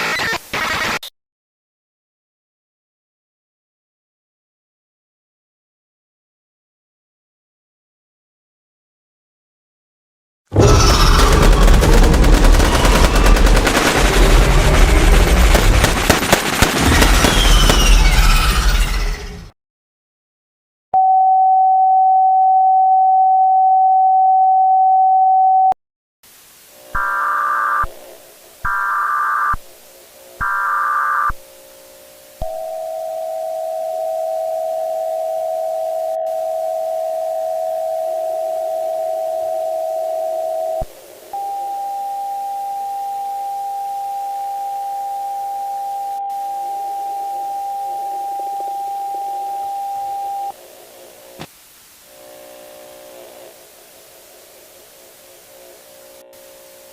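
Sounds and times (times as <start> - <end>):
data-like buzzing: 26.8 - 41.5.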